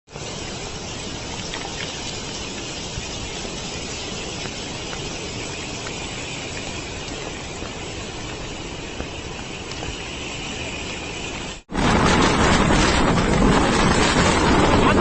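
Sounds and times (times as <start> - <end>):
storm wind and rain: 0.1 - 15.0
faint ticks: 4.3 - 10.1.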